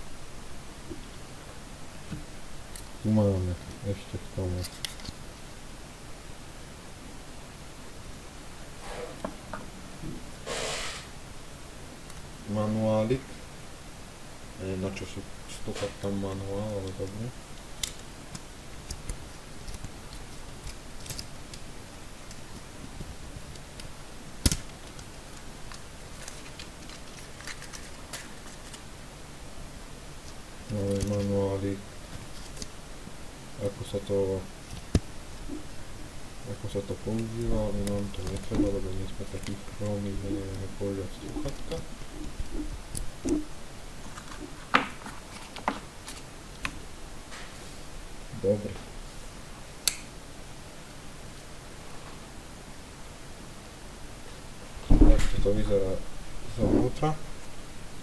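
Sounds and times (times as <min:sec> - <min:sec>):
packaging and paper rustling: 0:25.7 - 0:28.9
handling packaging clicks and taps: 0:44.1 - 0:46.8
sharp click: 0:49.8 - 0:50.1.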